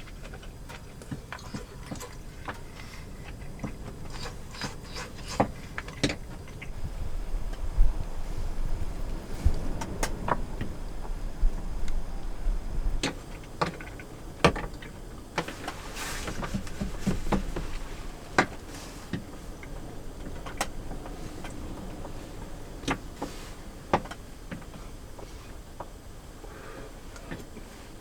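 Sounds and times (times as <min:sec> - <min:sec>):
low wind rumble: 0:00.0 - 0:28.0
objects handled clicking and knocking: 0:13.0 - 0:22.0.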